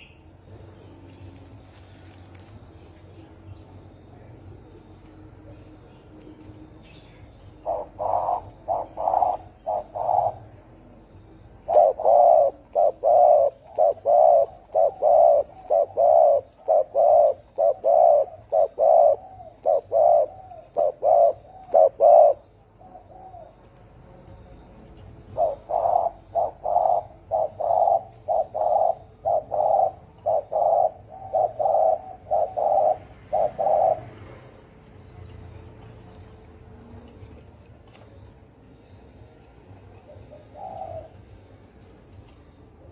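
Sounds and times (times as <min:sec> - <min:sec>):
dove cooing: 0:07.4 - 0:39.0, 0:39.7 - 0:41.6.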